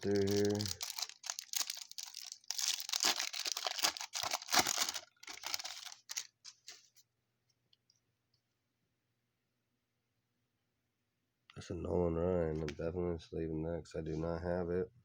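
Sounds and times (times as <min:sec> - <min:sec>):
cards clicking and rustling: 0:00.0 - 0:06.8
foil wrapper tearing and crinkling: 0:00.0 - 0:06.8.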